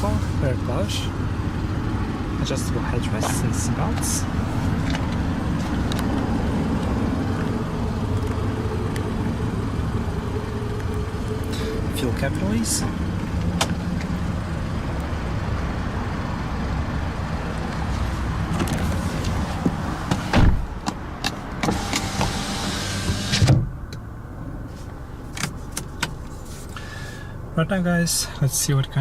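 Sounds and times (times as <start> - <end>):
rumble and hiss: 0.0 - 29.0
car door shutting: 13.2 - 14.1, 18.5 - 23.8
thump: 20.1 - 20.6.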